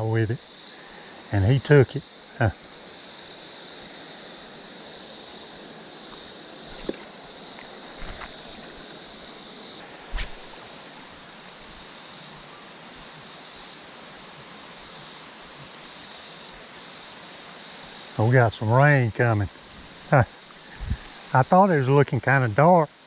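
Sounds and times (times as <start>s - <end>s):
creek water running: 0.0s - 22.6s
high steady hiss: 0.0s - 23.0s
sharp knock: 10.1s - 10.6s.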